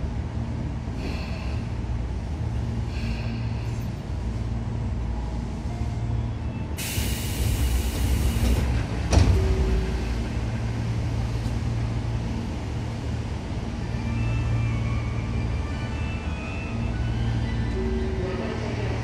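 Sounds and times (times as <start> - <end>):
train interior drone: 0.0 - 19.0
compressed air hiss: 6.8 - 8.6.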